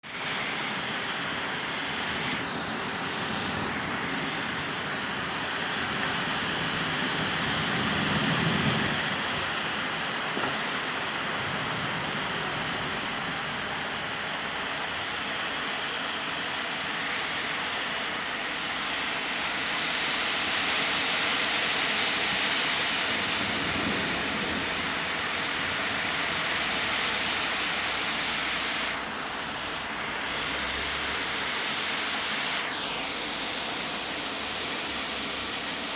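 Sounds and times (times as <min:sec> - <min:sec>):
heavy rain hiss: 0:00.1 - 0:35.9
squally wind: 0:01.6 - 0:16.5.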